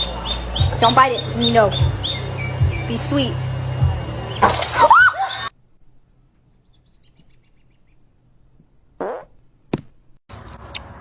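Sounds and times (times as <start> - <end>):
high bird-like chirps: 0.0 - 3.2, 6.6 - 8.0.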